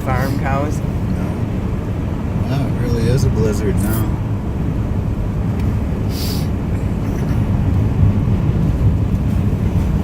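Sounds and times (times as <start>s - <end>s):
engine and road noise in cabin: 0.0s - 10.0s
brief hiss: 6.0s - 6.5s.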